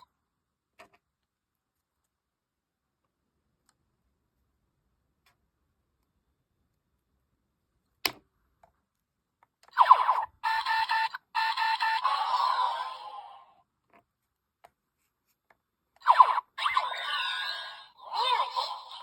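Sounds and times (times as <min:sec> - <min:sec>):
toy speaker electronic sound effect: 0:09.7 - 0:13.6, 0:16.0 - 0:19.0.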